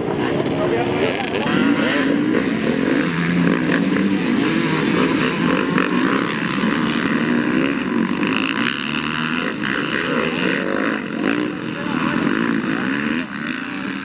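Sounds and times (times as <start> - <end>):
motocross bike engines revving: 0.0 - 14.0.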